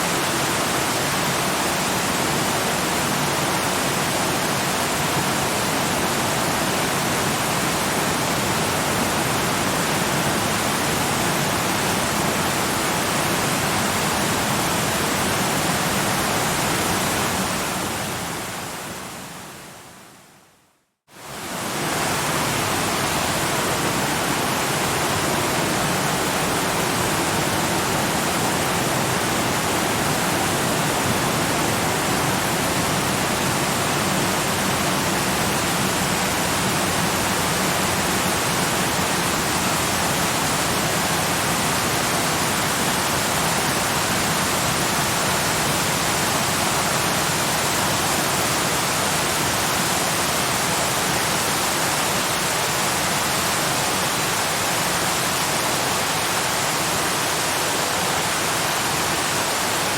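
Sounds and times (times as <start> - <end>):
waterfall roaring: 21.2 - 59.9.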